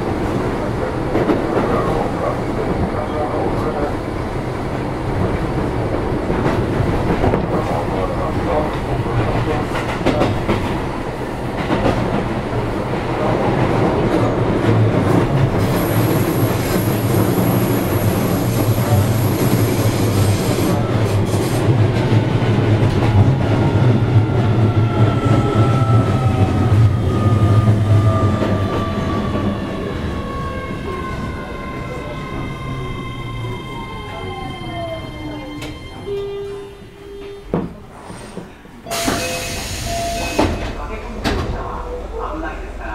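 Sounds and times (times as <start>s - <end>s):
train wheels rumbling on rail: 0.0s - 42.9s.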